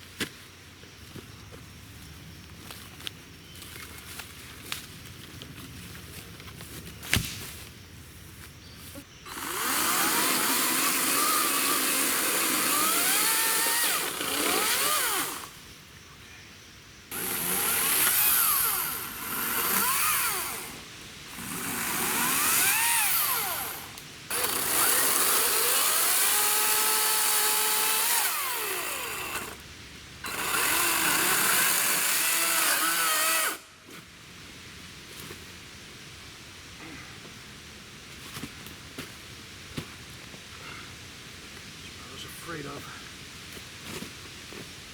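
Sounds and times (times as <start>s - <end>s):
chainsaw cutting logs: 9.3s - 15.6s, 17.1s - 29.6s, 30.2s - 33.7s.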